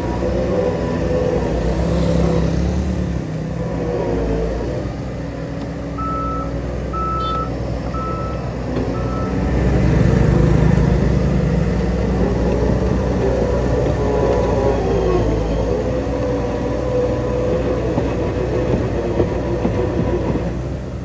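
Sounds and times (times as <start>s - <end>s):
diesel machine engine running: 0.0s - 21.0s
reversing alarm beeping: 6.0s - 9.5s.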